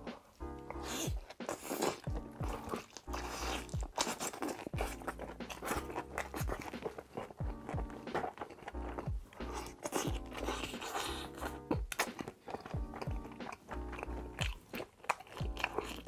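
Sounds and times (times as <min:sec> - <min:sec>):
lo-fi background track: 0:00.0 - 0:16.0
wet chewing and biting: 0:00.0 - 0:16.0.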